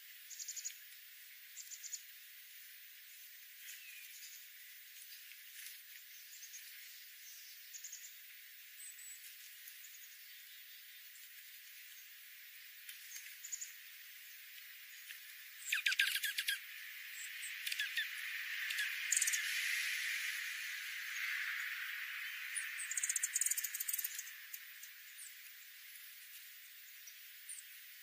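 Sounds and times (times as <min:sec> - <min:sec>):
faint bird chirps: 0:00.3 - 0:00.9, 0:01.5 - 0:02.2, 0:03.6 - 0:05.3, 0:05.9 - 0:11.2, 0:12.9 - 0:26.0
harsh rapid bird chattering: 0:15.6 - 0:16.6, 0:17.6 - 0:19.4.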